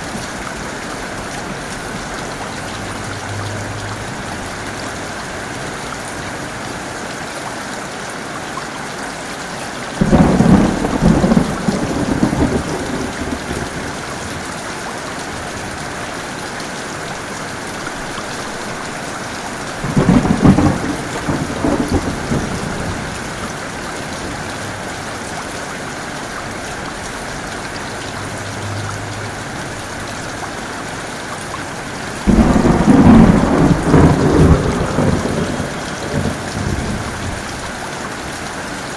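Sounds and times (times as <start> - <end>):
heavy rain: 0.0 - 38.9
thunder claps: 10.0 - 14.1, 19.8 - 23.5, 32.2 - 37.5.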